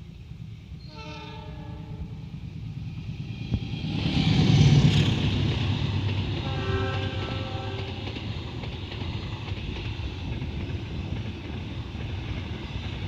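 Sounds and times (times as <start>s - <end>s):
locomotive and wheels rumbling: 0.0s - 13.0s
train horn blast: 0.8s - 2.2s, 6.4s - 8.0s.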